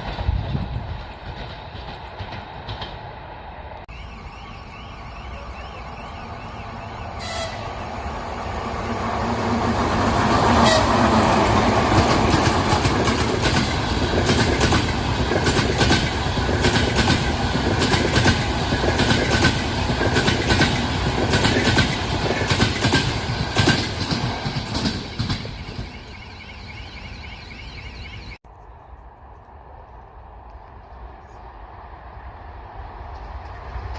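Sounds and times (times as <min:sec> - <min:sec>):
wheels clicking over rail joints: 0:00.0 - 0:03.1
train rumbling past: 0:00.0 - 0:28.3, 0:29.0 - 0:33.9.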